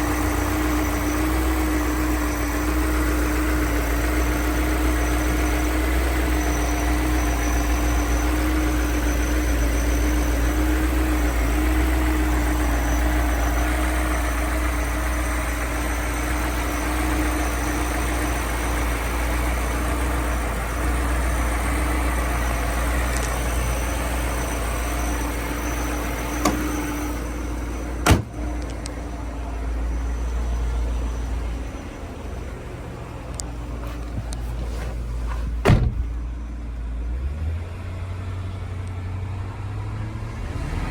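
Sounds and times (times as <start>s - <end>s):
car engine idling: 0.0s - 39.5s
sharp thump: 34.1s - 36.1s.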